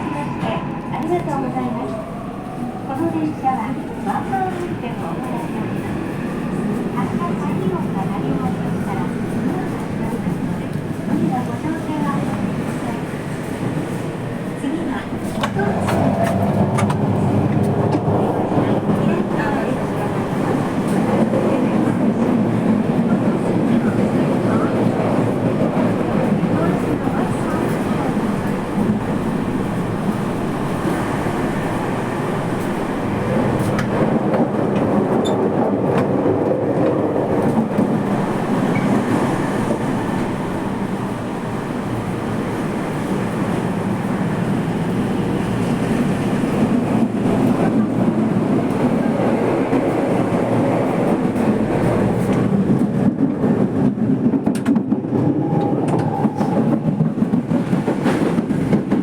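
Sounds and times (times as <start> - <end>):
subway train wheels rumbling: 0.0 - 59.0.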